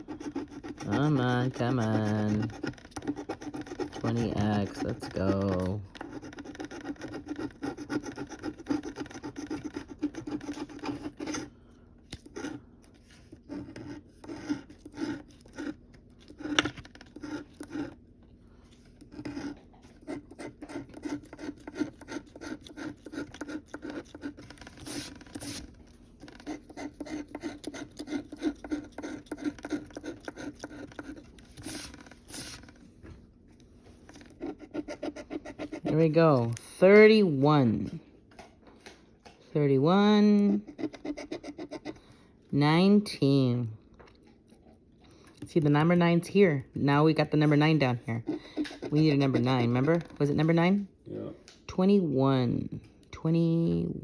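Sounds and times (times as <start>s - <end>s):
lottery ticket being scratched: 0.0s - 11.5s, 12.2s - 18.0s, 19.0s - 32.8s, 34.1s - 37.9s, 45.5s - 50.8s.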